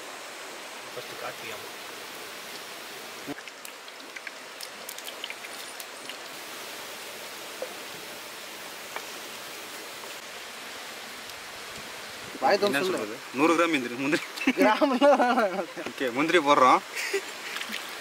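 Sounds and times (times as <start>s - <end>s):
steady rain hiss: 0.0s - 18.0s
small sharp ticks: 3.4s - 6.3s.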